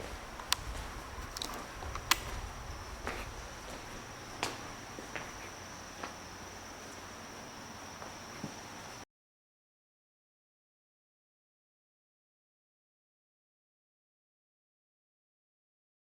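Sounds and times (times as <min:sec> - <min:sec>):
insects chirring: 0:00.0 - 0:09.0
short clicks: 0:01.3 - 0:02.3.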